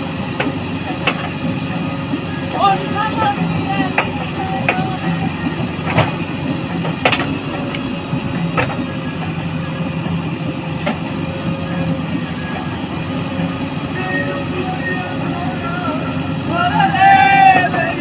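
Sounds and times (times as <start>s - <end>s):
heavy diesel engine running: 0.0s - 18.0s
sharp knocks: 0.3s - 8.9s.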